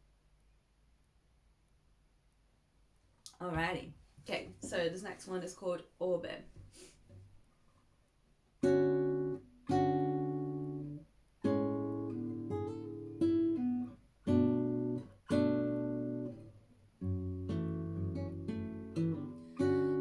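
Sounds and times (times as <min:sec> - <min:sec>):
acoustic guitar chords strummed: 0:08.6 - 0:20.0.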